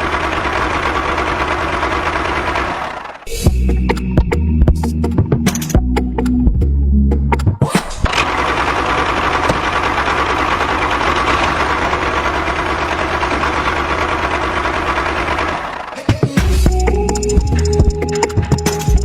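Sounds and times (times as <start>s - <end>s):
music: 3.3s - 8.0s, 16.0s - 19.0s.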